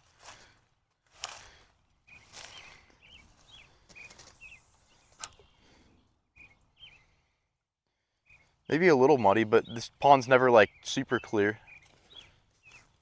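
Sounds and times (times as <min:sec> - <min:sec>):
small bird chirping: 0:02.1 - 0:05.7, 0:06.3 - 0:07.2, 0:10.6 - 0:13.0.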